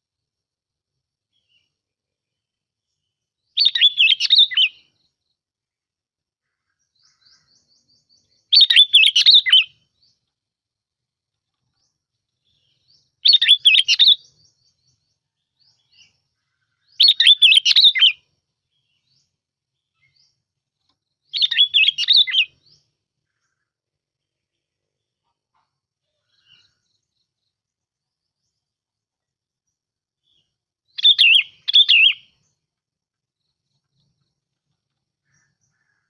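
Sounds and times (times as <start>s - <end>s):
bird singing bubbling phrases: 3.5s - 5.0s, 6.8s - 9.8s, 12.5s - 19.2s, 21.3s - 23.6s, 30.3s - 32.4s.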